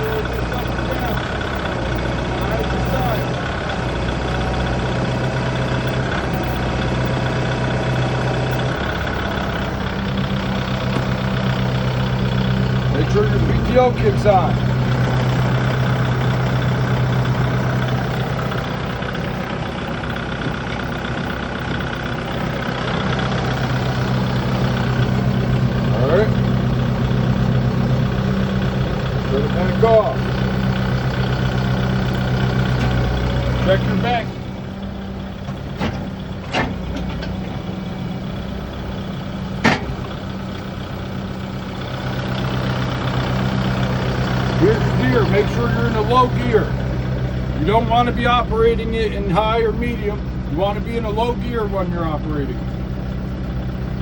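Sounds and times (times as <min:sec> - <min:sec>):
diesel tractor engine humming: 0:00.0 - 0:54.0.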